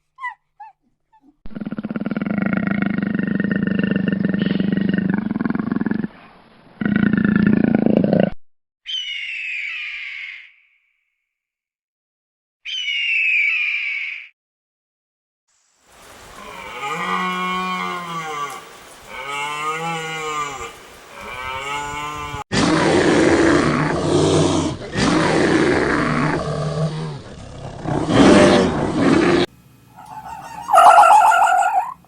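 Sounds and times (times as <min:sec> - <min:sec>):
cow mooing: 0:16.4 - 0:22.4, 0:30.0 - 0:32.0
rough loud animal calls: 0:25.0 - 0:32.0.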